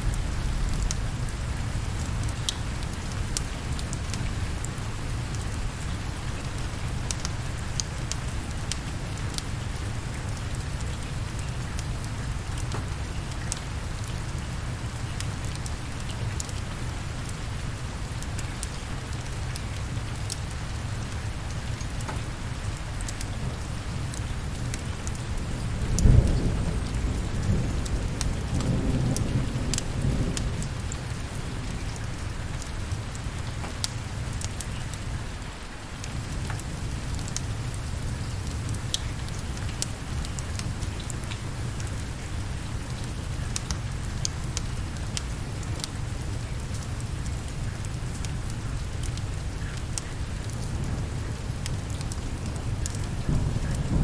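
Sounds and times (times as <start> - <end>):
steady rain: 0.0 - 54.0
thunderclap rumbling: 25.5 - 31.8, 50.7 - 54.0.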